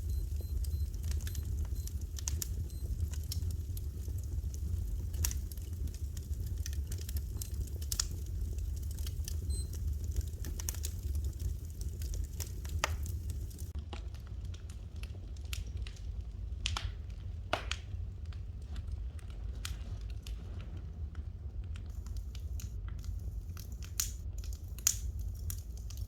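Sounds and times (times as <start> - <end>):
fire crackling in a fireplace: 0.0 - 26.0.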